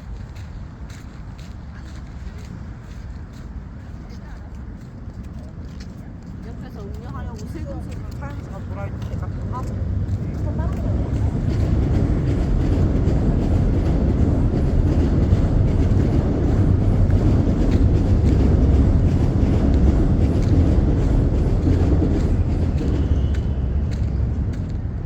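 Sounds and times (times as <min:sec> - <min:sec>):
passing train rumble: 0:00.0 - 0:25.0.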